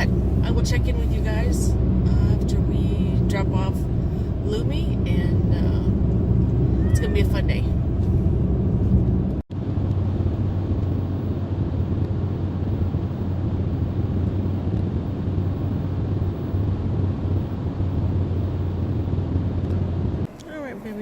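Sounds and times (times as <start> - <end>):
car road and engine drone: 0.0 - 21.0.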